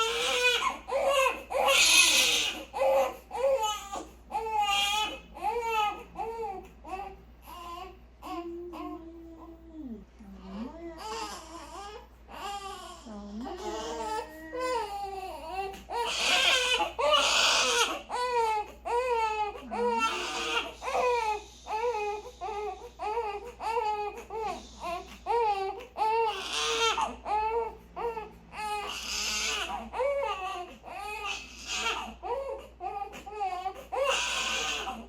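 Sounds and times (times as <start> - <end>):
newborn baby crying: 0.0 - 9.6, 10.8 - 35.0.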